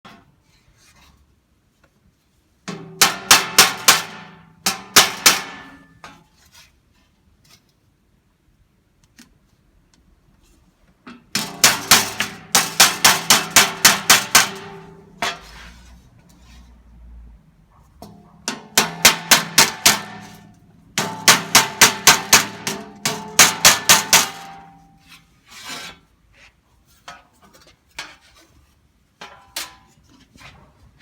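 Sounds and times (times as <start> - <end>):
hammer blows on sheet steel: 2.7 - 6.2, 11.4 - 15.7, 18.0 - 25.0.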